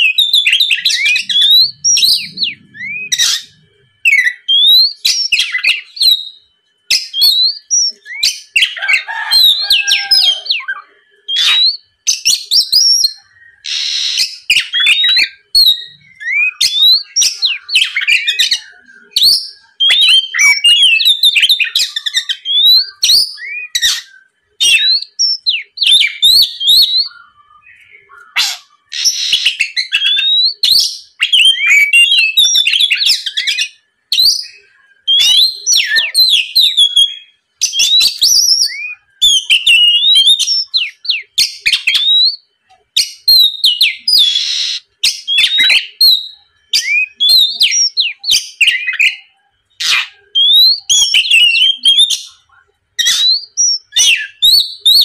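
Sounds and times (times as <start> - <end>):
magpie-robin singing: 0.0 - 55.0.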